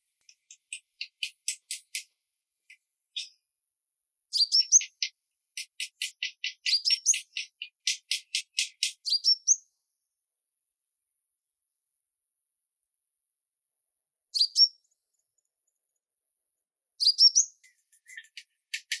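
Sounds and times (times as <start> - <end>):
songbird chirping: 0.0 - 3.5, 4.3 - 9.8, 14.3 - 15.5, 17.0 - 19.0.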